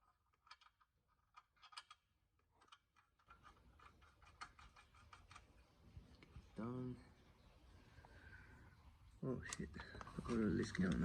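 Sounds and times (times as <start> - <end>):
small metal parts clicking: 0.0 - 5.6.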